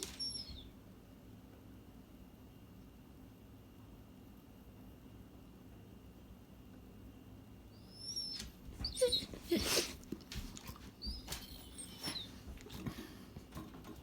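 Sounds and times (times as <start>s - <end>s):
dog squeaky vocal sounds: 7.9s - 10.0s, 11.0s - 12.4s
dog sneezing: 9.0s - 10.1s.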